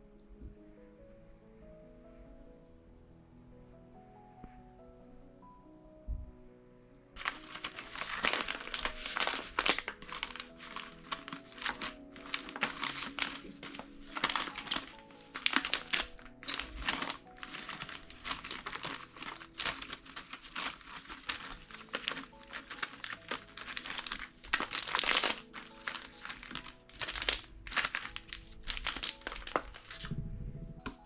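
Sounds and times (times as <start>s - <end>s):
soft background music: 0.0s - 31.0s
packaging crinkling: 7.2s - 30.1s.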